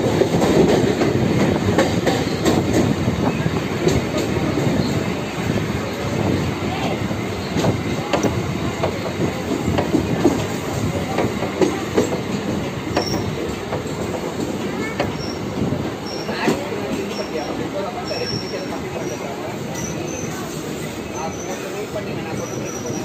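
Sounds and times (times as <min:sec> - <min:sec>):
train wheels rumbling: 0:00.0 - 0:23.0
high wheel squeals: 0:14.9 - 0:16.5.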